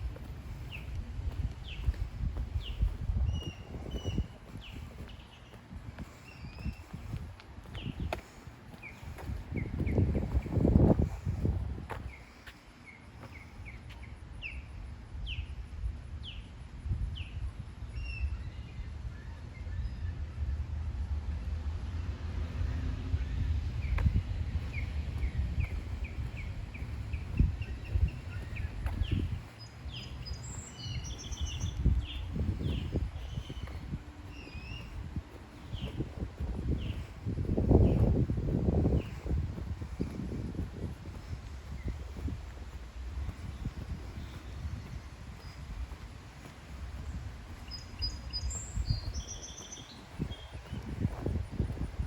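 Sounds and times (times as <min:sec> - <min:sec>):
small birds chirping: 0:00.0 - 0:15.6, 0:23.2 - 0:52.0
bird chirping: 0:23.8 - 0:36.0, 0:47.0 - 0:50.9.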